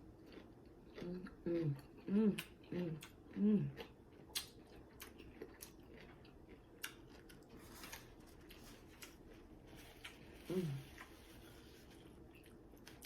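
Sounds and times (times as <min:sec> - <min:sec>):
chewing food: 0:00.0 - 0:13.0.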